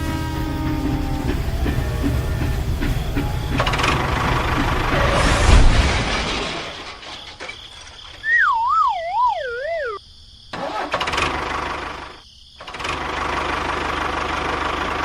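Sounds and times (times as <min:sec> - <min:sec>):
small engine running: 0:00.0 - 0:05.6, 0:10.6 - 0:15.0
wobbling tone sliding lower: 0:00.6 - 0:06.8, 0:08.2 - 0:10.0.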